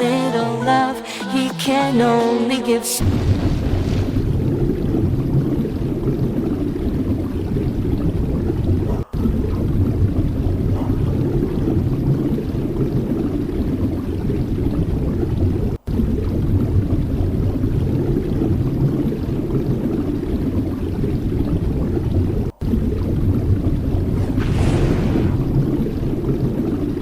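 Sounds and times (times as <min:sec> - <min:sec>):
sea rushing: 0:24.0 - 0:27.0.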